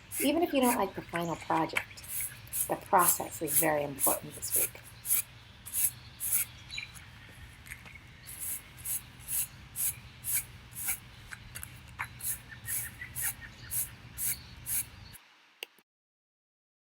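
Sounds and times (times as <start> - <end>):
brush sweeping sidewalk: 0.0 - 6.7, 8.3 - 15.1.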